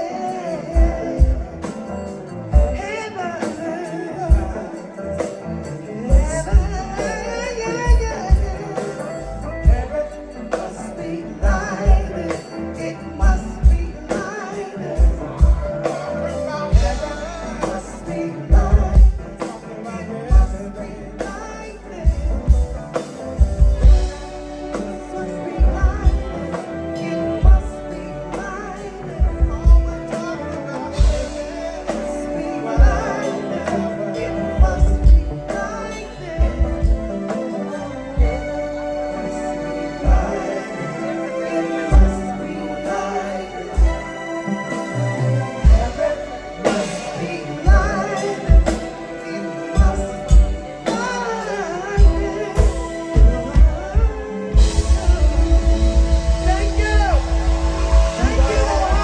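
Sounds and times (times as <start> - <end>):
keyboard chords: 0.0 - 59.0
live band playing soul song: 0.0 - 59.0
person singing: 0.0 - 59.0
bass drum: 16.7 - 26.6, 34.5 - 37.3, 45.0 - 49.0, 49.8 - 59.0
heavy bass beat: 52.0 - 59.0.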